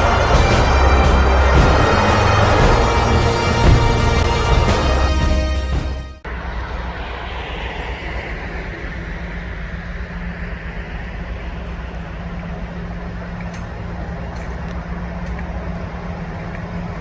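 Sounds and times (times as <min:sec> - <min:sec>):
hiss: 0:00.0 - 0:05.2
diesel locomotive engine drone: 0:00.0 - 0:17.0.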